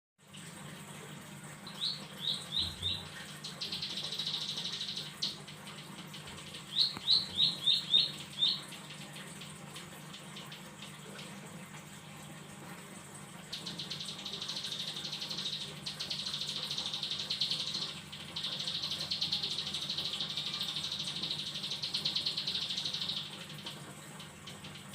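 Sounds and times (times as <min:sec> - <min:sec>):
faint rapid ticking trill: 0:00.4 - 0:24.9
bird chirping and trilling: 0:01.6 - 0:11.4, 0:13.4 - 0:24.9.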